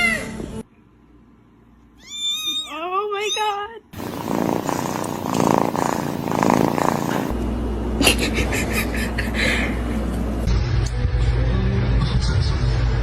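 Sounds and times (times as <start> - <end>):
cat purring: 4.0 - 7.4.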